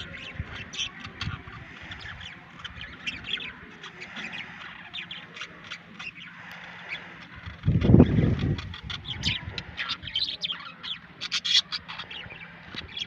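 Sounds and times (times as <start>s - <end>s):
budgerigars chattering: 0.0s - 13.0s.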